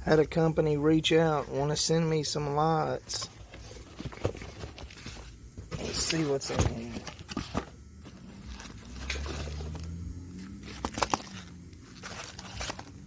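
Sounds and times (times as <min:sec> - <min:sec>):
cardboard packaging rustling: 0:02.6 - 0:13.0.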